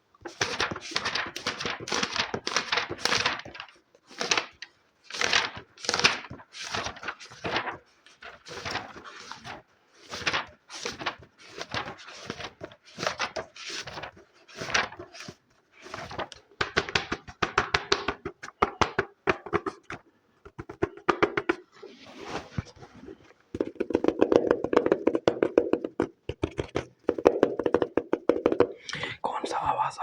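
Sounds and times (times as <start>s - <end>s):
fingertip tapping: 23.6s - 28.8s.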